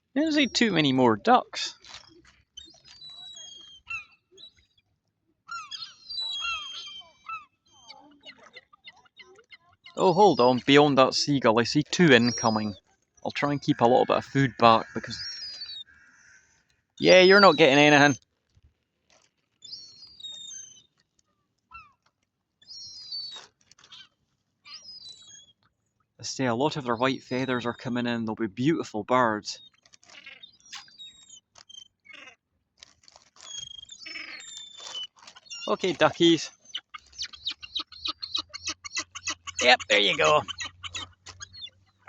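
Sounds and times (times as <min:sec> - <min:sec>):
gulls calling: 0:00.0 - 0:01.8, 0:09.8 - 0:16.4, 0:17.0 - 0:18.2, 0:26.4 - 0:28.4, 0:34.0 - 0:42.0.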